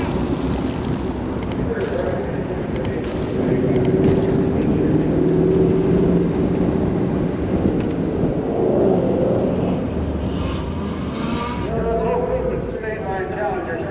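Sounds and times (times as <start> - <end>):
car engine running: 0.0 - 4.9.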